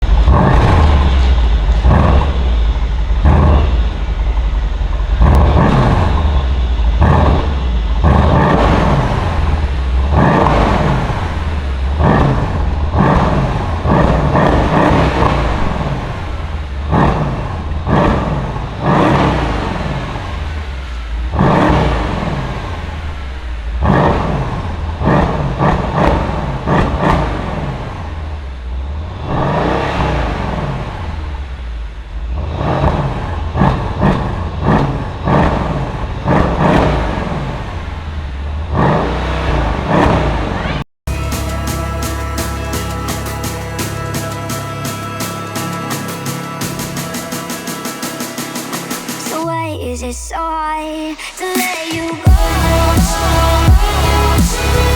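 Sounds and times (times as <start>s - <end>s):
car engine revving: 0.0s - 49.4s, 51.0s - 54.9s
exhaust cracks: 0.0s - 49.6s.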